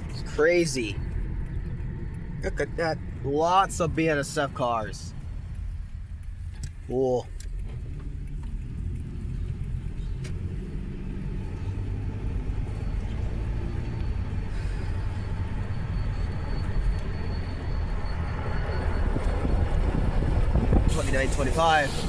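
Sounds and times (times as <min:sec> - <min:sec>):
faint high squeal: 0:14.0 - 0:19.9
freight train rumbling past: 0:14.3 - 0:22.0.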